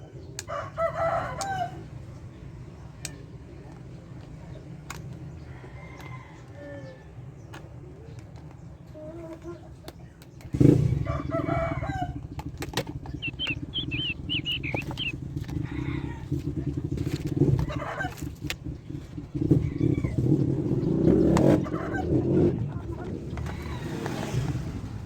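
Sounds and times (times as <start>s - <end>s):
engine rumble: 0.0s - 25.0s
bird chirps: 13.0s - 15.3s.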